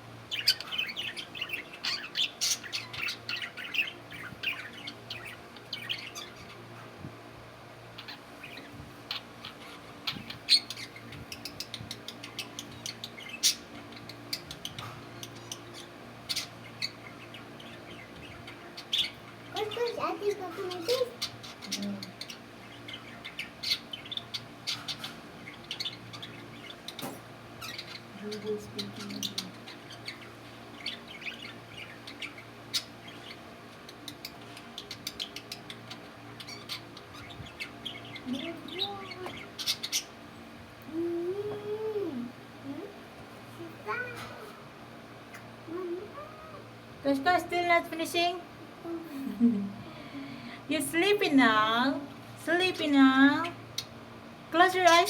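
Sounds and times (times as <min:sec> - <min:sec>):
faint steady hum: 0:00.0 - 0:55.0
budgerigars chirping: 0:00.3 - 0:06.9, 0:08.0 - 0:40.3.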